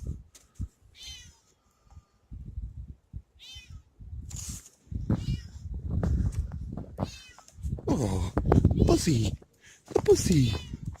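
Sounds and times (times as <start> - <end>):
cat meowing: 1.0 - 1.4, 3.4 - 3.9, 5.2 - 5.6, 7.0 - 7.5.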